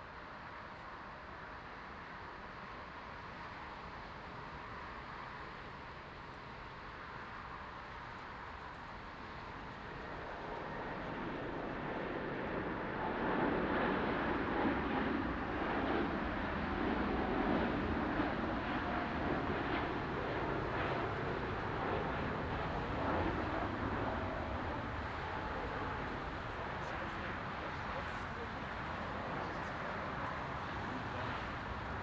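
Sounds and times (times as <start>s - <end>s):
jet engines running: 8.7s - 32.0s.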